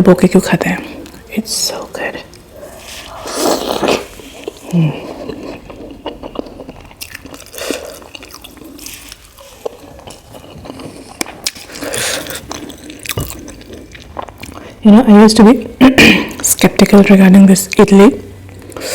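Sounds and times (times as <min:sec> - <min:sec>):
wet chewing and smacking: 0:02.3 - 0:14.8.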